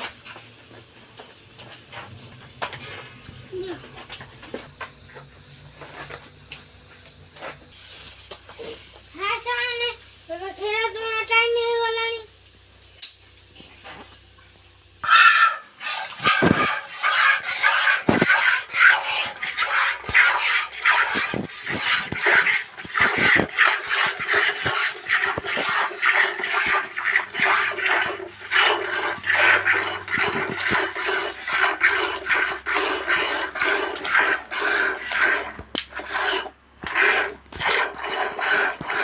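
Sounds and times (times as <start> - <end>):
milk jets hissing into a pail: 7.7 - 12.2, 15.3 - 39.0.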